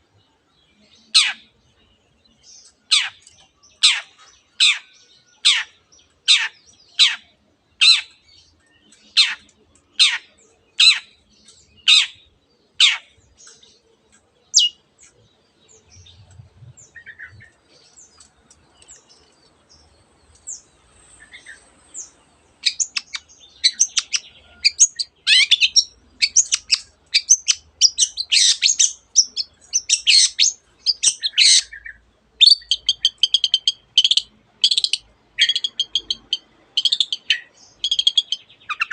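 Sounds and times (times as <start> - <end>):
bird fast chattering song: 14.5 - 15.2, 18.8 - 38.9.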